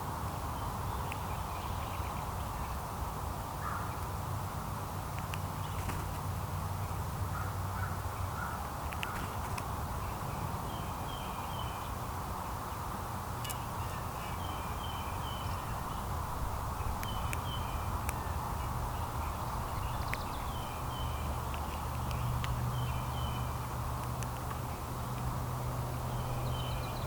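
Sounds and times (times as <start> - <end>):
outdoor background noise: 0.0 - 27.0
songbirds chirping: 0.4 - 27.0
sharp ticks: 19.4 - 20.6, 21.4 - 22.8, 23.6 - 25.3.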